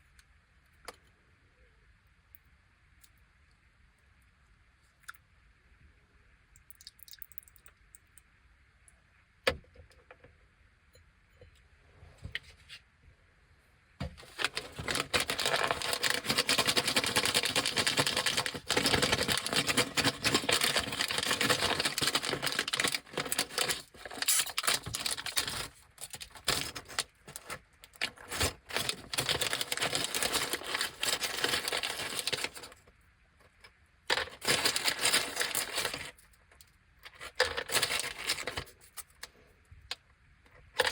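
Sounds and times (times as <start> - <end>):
plastic snack bag crinkling: 14.1 - 32.9, 34.1 - 36.3, 37.1 - 39.2.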